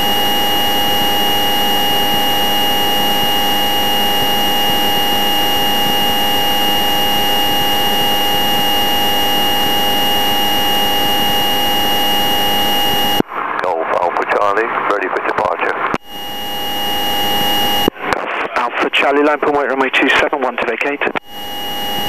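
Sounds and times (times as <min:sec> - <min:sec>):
high electrical whine: 0:00.0 - 0:13.5, 0:15.9 - 0:18.2, 0:21.2 - 0:22.0.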